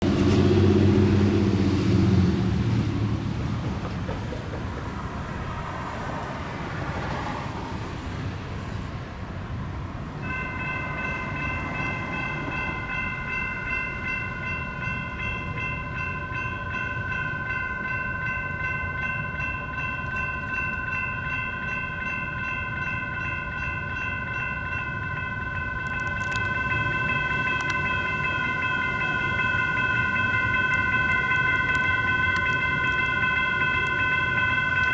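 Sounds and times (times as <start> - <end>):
road traffic: 0.0 - 14.5, 24.6 - 34.9
crossing electronic bell ringing: 10.2 - 34.9.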